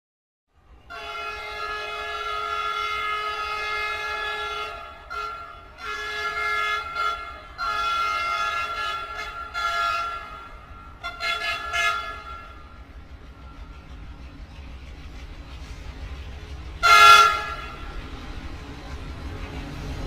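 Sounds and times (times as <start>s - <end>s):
train horn blasts: 0.9s - 12.8s, 16.8s - 18.0s.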